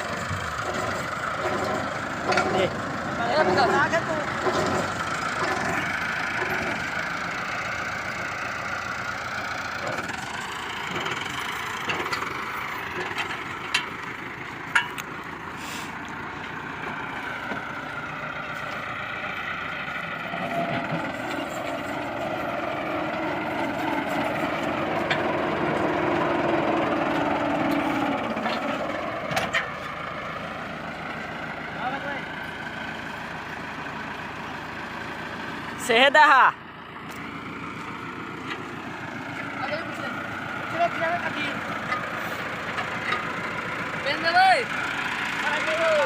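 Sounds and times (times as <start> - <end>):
heavy machinery engine running: 0.0 - 46.0.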